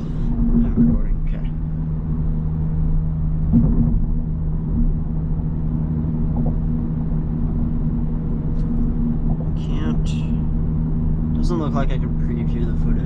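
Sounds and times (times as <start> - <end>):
car engine drone: 0.0 - 13.0
tyre and road noise: 0.0 - 13.0.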